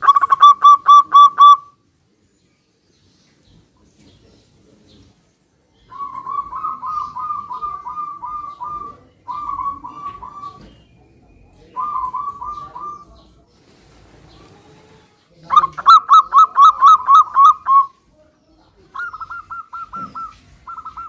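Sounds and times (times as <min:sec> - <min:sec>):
dove cooing: 0:00.0 - 0:01.7, 0:05.9 - 0:10.8, 0:11.6 - 0:13.2, 0:15.5 - 0:17.9, 0:18.9 - 0:21.0.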